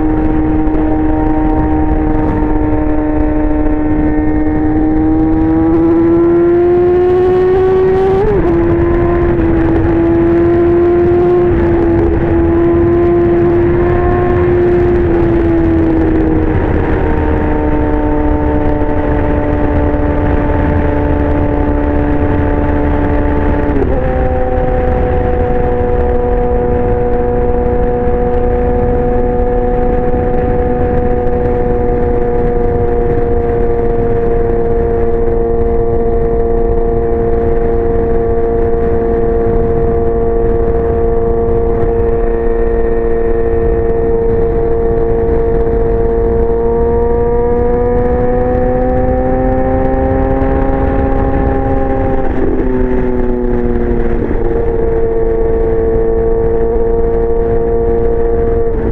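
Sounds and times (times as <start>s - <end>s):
gear change: 0.0s - 58.9s
motorcycle engine running: 0.0s - 58.9s.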